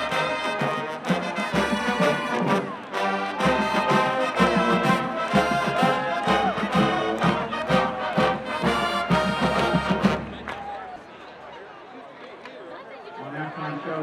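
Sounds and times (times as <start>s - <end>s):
marching band playing a march: 0.0s - 10.6s.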